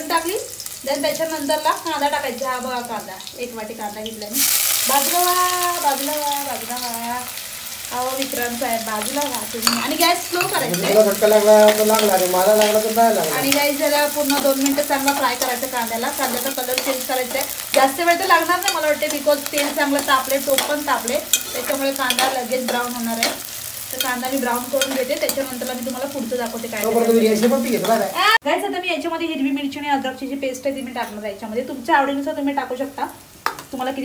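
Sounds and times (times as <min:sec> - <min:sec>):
onions frying in hot oil: 0:00.0 - 0:34.0
metal spoon scraping a pot: 0:16.3 - 0:25.6.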